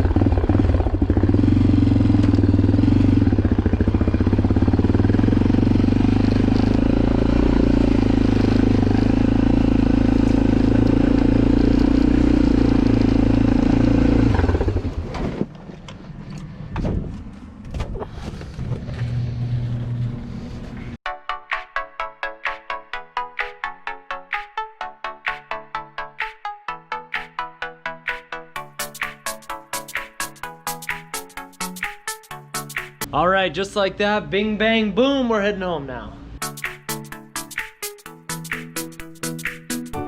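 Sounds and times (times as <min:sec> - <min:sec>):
single-cylinder engine idling: 0:00.0 - 0:14.9.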